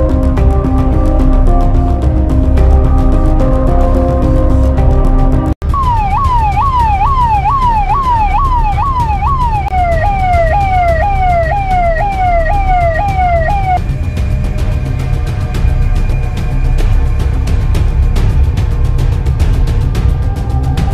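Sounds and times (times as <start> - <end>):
music: 0.0 - 20.9
ambulance siren wailing: 5.6 - 13.8.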